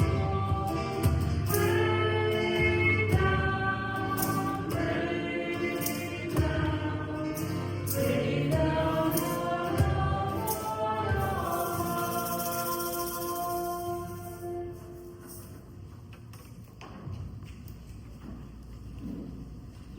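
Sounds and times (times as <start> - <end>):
choir singing a hymn: 0.0 - 15.1
light percussion strokes: 7.3 - 15.9.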